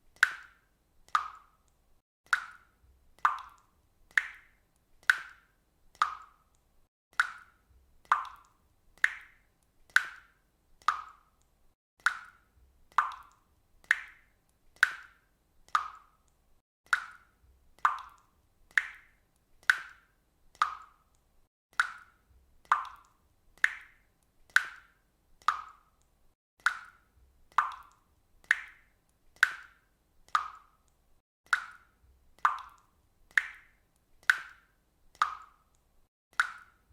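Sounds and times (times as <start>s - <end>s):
water dripping: 0.0s - 36.9s.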